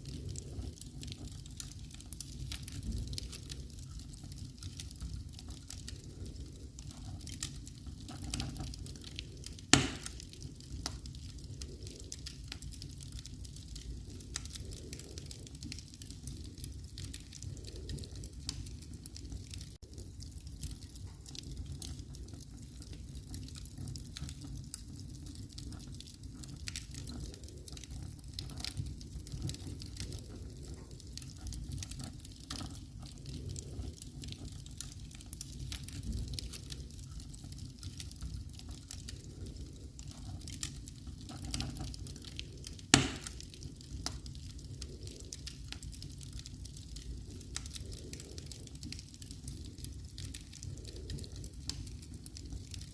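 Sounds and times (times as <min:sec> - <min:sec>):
wood fire crackling: 0:00.0 - 0:52.9
loud fire pop: 0:09.7 - 0:10.2, 0:42.9 - 0:43.4.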